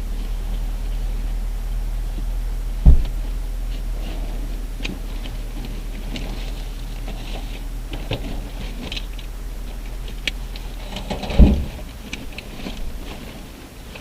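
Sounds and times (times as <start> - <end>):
steady low hum: 0.0 - 14.0
heavy thump: 2.8 - 5.3, 11.0 - 11.9.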